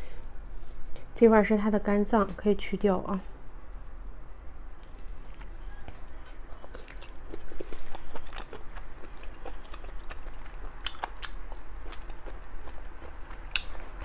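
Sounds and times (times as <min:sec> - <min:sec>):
biting clicks and crackles: 0:04.8 - 0:14.0
person chewing: 0:04.8 - 0:14.0.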